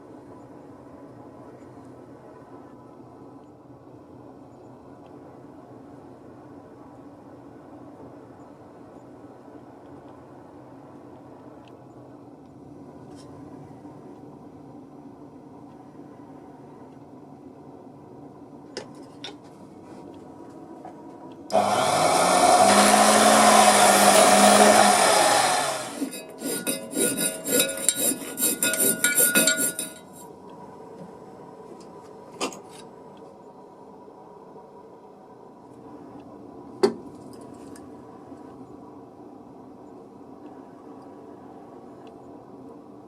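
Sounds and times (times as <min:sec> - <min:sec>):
table saw running: 0:21.5 - 0:30.0
rough scraping strokes: 0:22.4 - 0:30.3.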